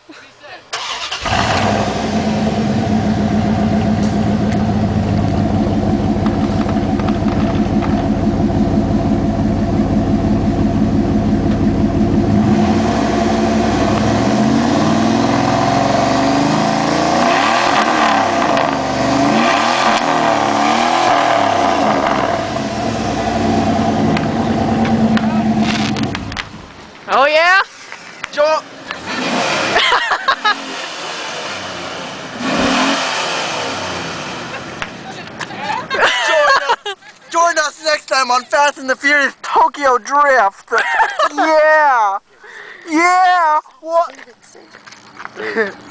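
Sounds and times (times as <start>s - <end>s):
loud vee eight engine idling and revving: 0.8s - 26.8s, 28.9s - 34.9s.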